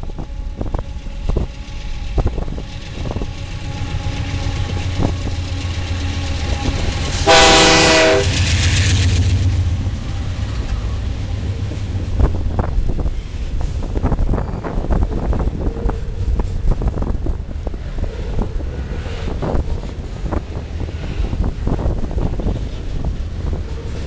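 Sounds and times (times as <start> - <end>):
diesel locomotives rumbling: 0.0 - 24.0
train horn blast: 3.0 - 8.6.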